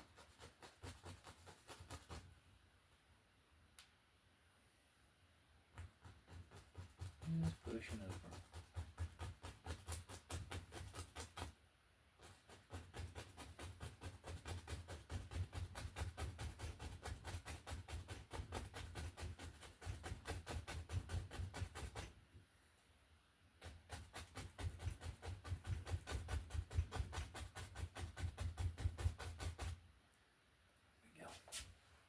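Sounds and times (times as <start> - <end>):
paintbrush tapping on canvas: 5.7 - 11.6.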